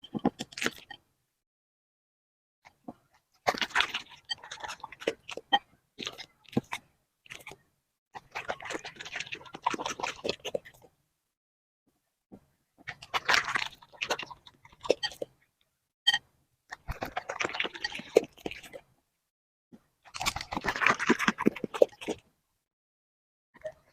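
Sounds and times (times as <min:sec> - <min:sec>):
puppy chewing food: 0:03.1 - 0:07.6, 0:08.2 - 0:10.9, 0:12.8 - 0:15.3, 0:16.7 - 0:18.8, 0:20.1 - 0:22.3.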